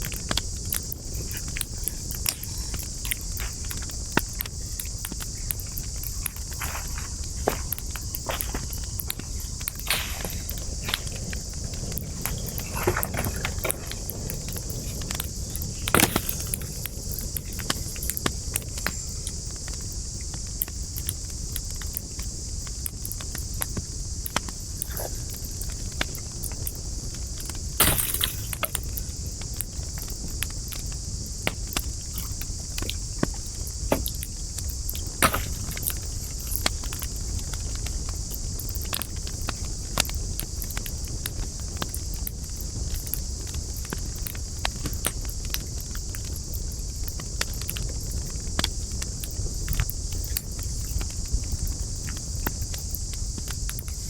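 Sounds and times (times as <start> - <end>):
high hiss: 0.0 - 41.2
campfire crackling and popping: 0.0 - 54.0
low rumble of flames: 0.0 - 54.0.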